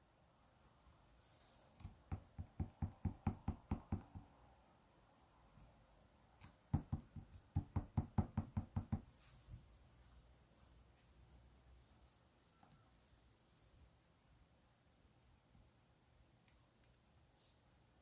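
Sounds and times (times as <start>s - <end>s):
fingers tapping slime: 6.4s - 9.0s.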